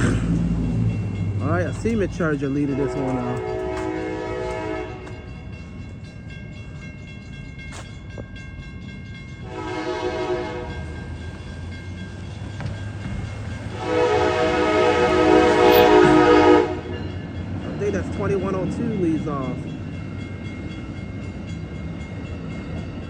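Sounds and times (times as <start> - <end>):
low rumble of approaching train: 0.0 - 23.0
faint crossing bell ringing: 0.5 - 23.0
train horn blasts: 2.7 - 5.3, 9.4 - 11.0, 13.7 - 17.0.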